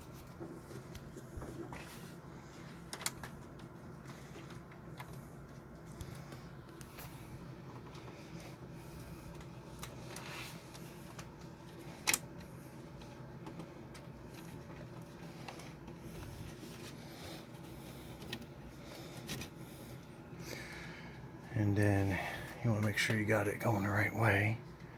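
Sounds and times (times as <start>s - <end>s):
clicks and rustles of wiring: 0.0s - 20.1s
faint steady hum: 0.0s - 24.9s.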